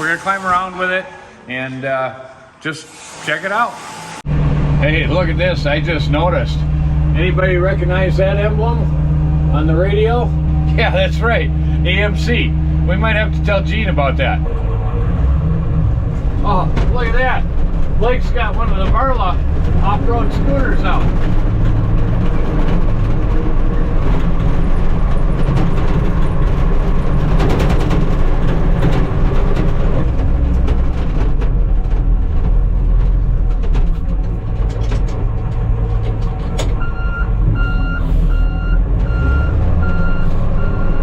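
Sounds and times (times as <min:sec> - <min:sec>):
snow vehicle engine droning: 0:00.0 - 0:01.7, 0:03.5 - 0:41.0
reversing alarm beeping: 0:36.8 - 0:41.0.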